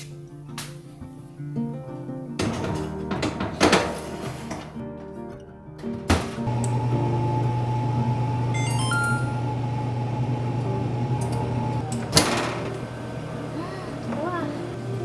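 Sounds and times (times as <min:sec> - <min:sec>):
microwave oven humming: 0:06.4 - 0:15.0
microwave click: 0:06.5 - 0:13.2
short beeps: 0:08.6 - 0:09.6.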